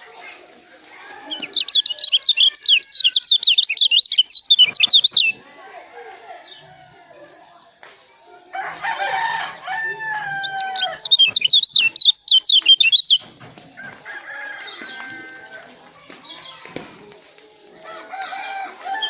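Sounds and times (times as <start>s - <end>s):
songbird whistling rapid notes: 1.4s - 5.4s, 10.4s - 13.2s
rooster crowing: 8.5s - 11.2s, 13.8s - 15.8s, 17.8s - 19.0s.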